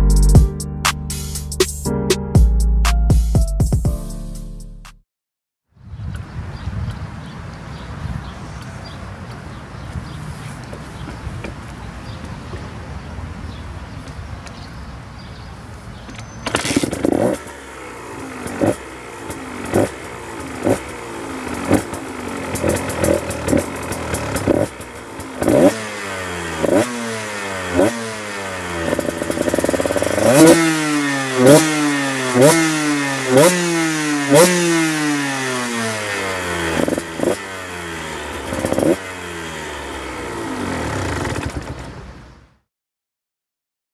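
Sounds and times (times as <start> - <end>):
dirt bike engine revving: 15.0 - 42.5.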